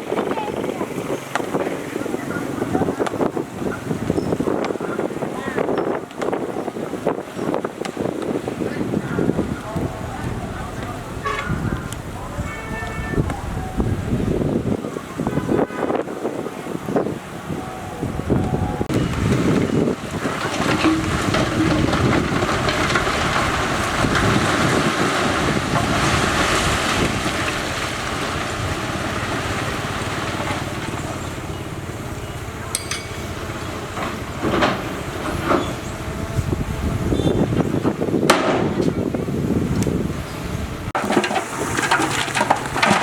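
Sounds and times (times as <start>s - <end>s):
heavy machinery running: 18.5s - 38.0s.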